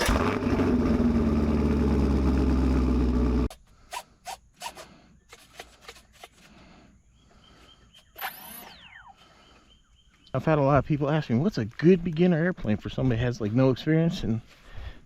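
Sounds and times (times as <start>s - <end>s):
loud engine-like running: 0.0s - 3.5s.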